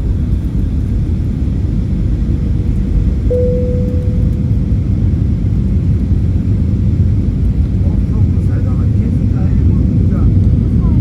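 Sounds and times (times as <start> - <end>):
aircraft cabin engine rumble: 0.0 - 11.0
cabin chime: 3.3 - 4.8.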